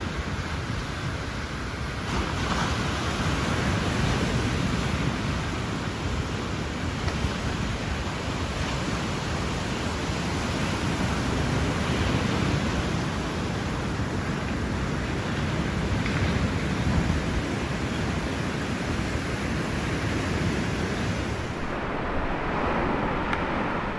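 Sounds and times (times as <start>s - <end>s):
waves breaking on beach: 20.1s - 23.9s.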